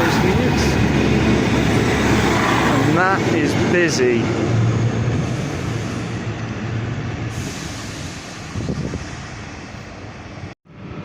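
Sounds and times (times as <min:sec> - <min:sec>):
diesel train engine drone: 0:00.0 - 0:11.0
train wheels rumbling: 0:00.0 - 0:11.0.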